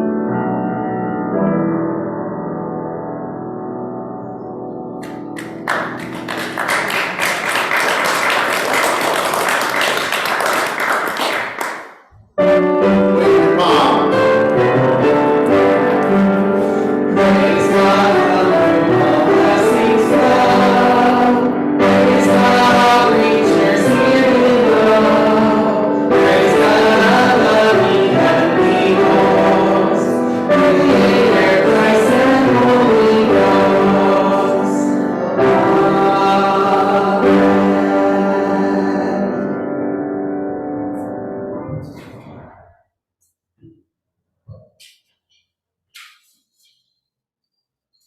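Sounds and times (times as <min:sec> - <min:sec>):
piano playing: 0:00.0 - 0:42.7
congregation applauding: 0:05.0 - 0:12.1
choir singing a hymn: 0:13.4 - 0:39.7.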